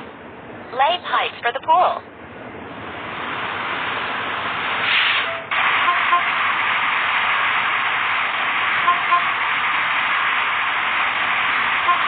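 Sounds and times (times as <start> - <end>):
dense hiss: 3.1 - 11.9.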